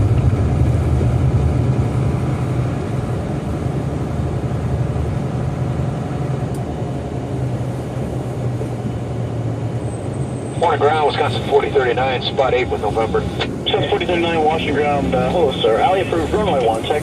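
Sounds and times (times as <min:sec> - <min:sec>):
jet engines low rumble: 0:00.0 - 0:17.0
faint steady whine: 0:09.8 - 0:17.0.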